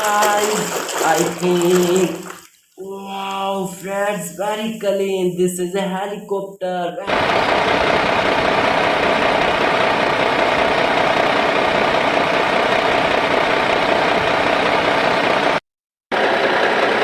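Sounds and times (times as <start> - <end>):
helicopter engine drone: 7.1 - 15.6, 16.2 - 17.0.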